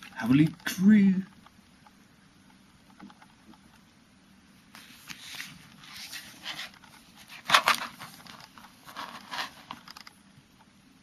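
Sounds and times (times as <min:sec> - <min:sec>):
paper sliding and rustling: 0:04.7 - 0:09.8.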